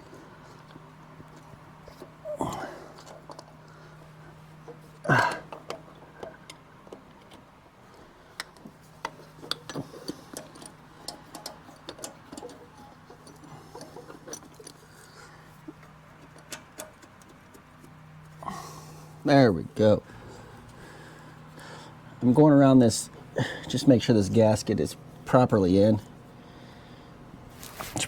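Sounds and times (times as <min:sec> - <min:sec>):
light clicks and taps of parts: 0:00.5 - 0:03.8, 0:04.6 - 0:18.4.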